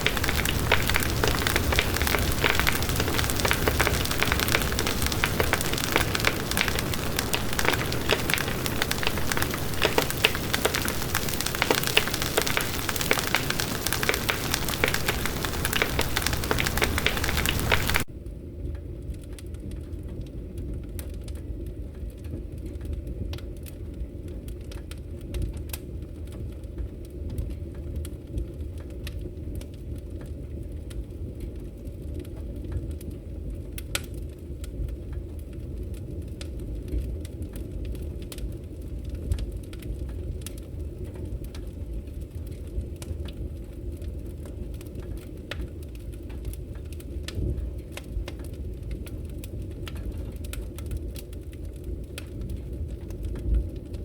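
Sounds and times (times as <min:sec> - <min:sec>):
fire crackling and popping: 0:00.0 - 0:18.1, 0:33.7 - 0:54.0.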